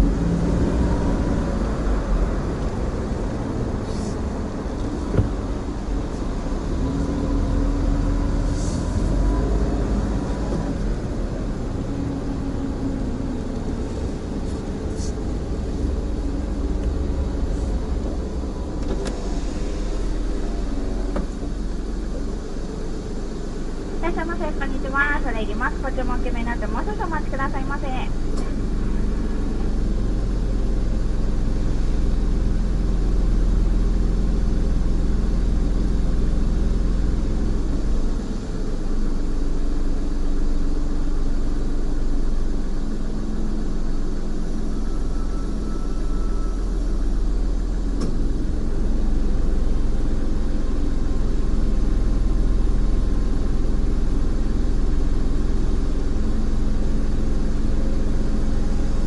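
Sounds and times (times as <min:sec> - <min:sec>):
car engine idling: 0:00.0 - 0:08.5, 0:09.2 - 0:59.0.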